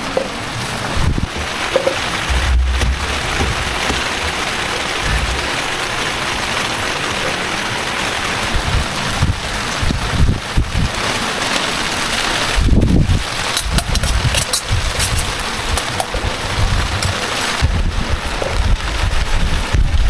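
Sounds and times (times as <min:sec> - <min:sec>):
heavy rain: 0:00.0 - 0:13.5
low thumps: 0:01.0 - 0:05.9.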